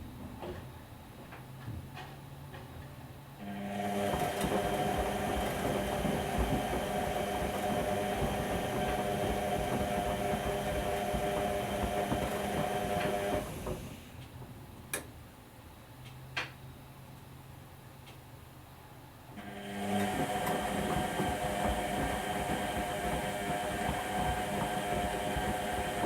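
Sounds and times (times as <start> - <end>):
washing machine running: 3.4 - 14.4, 19.4 - 26.0.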